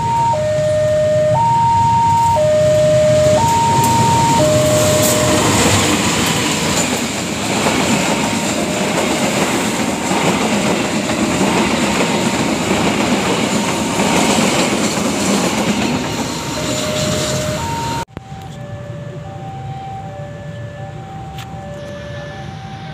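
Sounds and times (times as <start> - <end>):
train wheels clattering on rails: 3.3 - 18.0.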